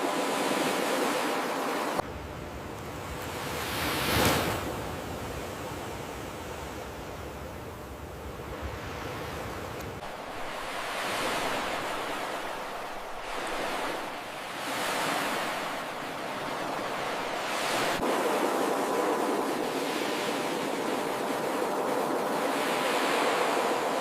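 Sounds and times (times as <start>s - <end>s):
ocean surf breaking on beach: 0.0s - 6.9s, 8.4s - 24.0s.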